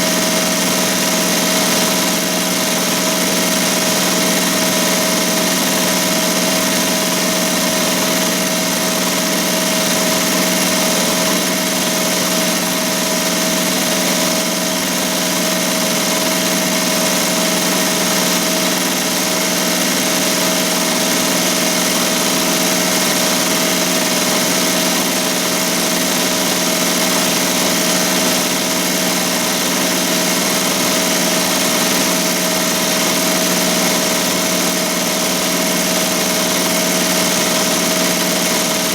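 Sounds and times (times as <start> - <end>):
embroidery machine running: 0.0 - 38.9.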